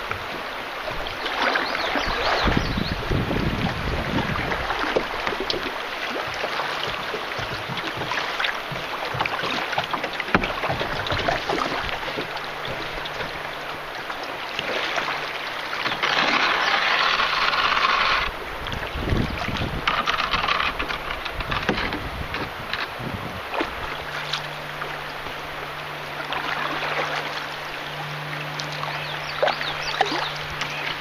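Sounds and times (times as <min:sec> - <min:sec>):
river water rushing and splashing: 0:00.0 - 0:31.0
small knocks: 0:19.6 - 0:22.9.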